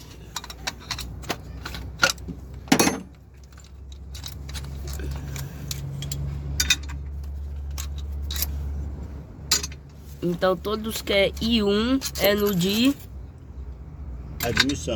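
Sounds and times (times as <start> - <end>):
metal parts clinking: 0.1 - 8.8, 9.4 - 9.9, 11.3 - 13.2, 14.3 - 14.9.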